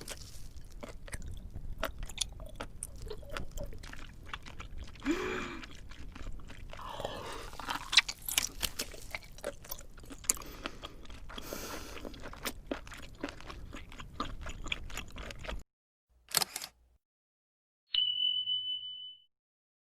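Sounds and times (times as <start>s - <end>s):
crunchy chewing: 0.0s - 15.6s.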